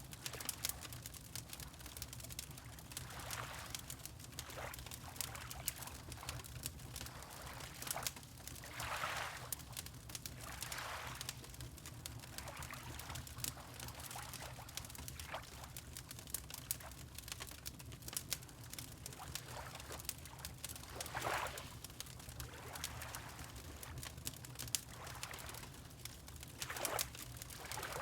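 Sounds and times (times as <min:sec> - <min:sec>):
fireplace crackling: 0:00.1 - 0:14.1, 0:15.8 - 0:28.0
water lapping: 0:08.6 - 0:09.6, 0:10.4 - 0:11.3, 0:20.8 - 0:21.8, 0:22.5 - 0:23.9, 0:25.0 - 0:25.7, 0:26.6 - 0:28.0.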